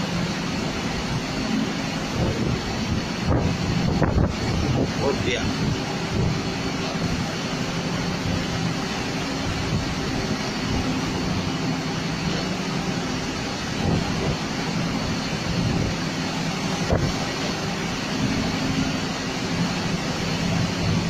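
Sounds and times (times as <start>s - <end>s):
boat engine droning: 0.0s - 21.0s
rain: 0.0s - 21.0s
storm wind: 0.0s - 21.0s
waves: 0.0s - 21.0s.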